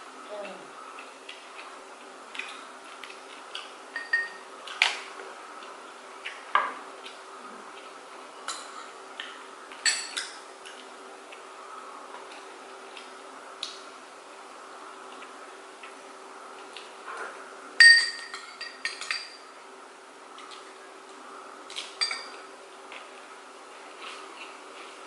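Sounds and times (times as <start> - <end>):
faint steady hum: 0.0 - 25.0
utensils clinking on plates: 4.0 - 4.4, 9.8 - 10.4, 17.8 - 19.5, 22.0 - 22.5.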